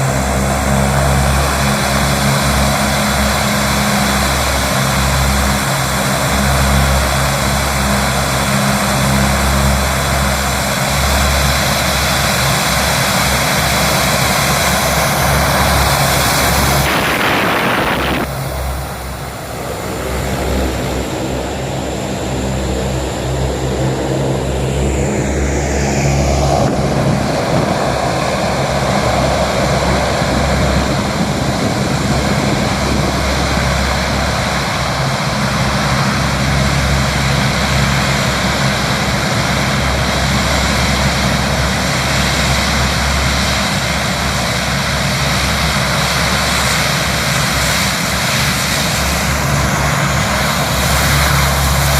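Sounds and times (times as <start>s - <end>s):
aircraft engines running: 0.0s - 51.9s.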